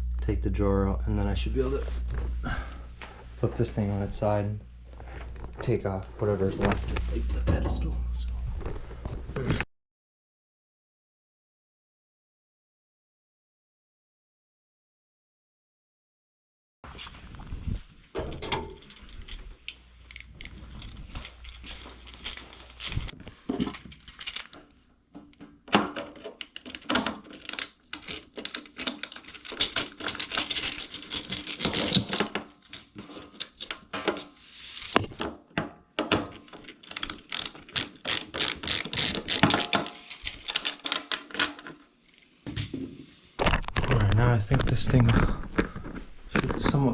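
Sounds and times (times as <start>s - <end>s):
nut driver clicking and rattling: 20.1s - 20.6s, 26.0s - 32.3s, 36.8s - 39.8s.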